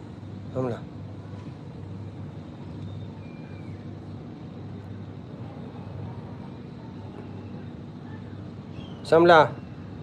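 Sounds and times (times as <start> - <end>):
faint high whistle: 2.8 - 3.9.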